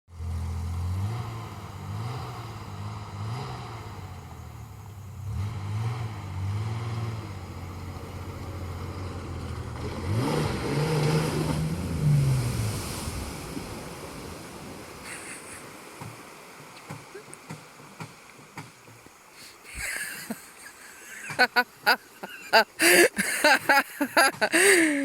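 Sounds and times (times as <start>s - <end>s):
off-road vehicle engine revving: 0.1s - 15.5s
water splashing: 6.6s - 25.0s.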